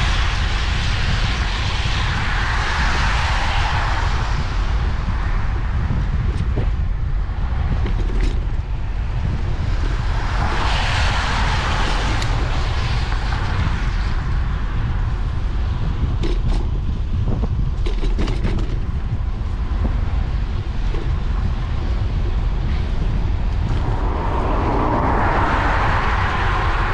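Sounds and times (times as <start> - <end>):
wind and road rumble: 0.0 - 26.9
bicycle clicks and rattles: 7.8 - 8.6, 16.2 - 16.9, 17.6 - 19.2.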